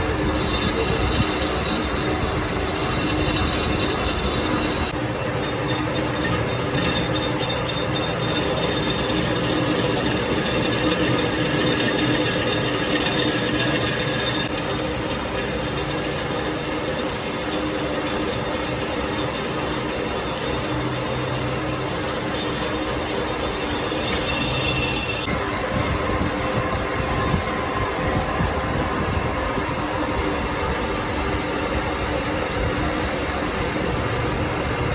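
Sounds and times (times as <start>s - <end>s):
workshop machinery running: 0.0s - 34.9s.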